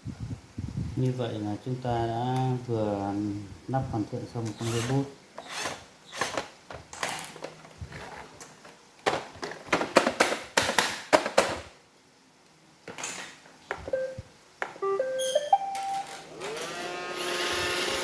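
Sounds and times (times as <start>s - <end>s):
short electronic beep: 14.8s - 16.1s.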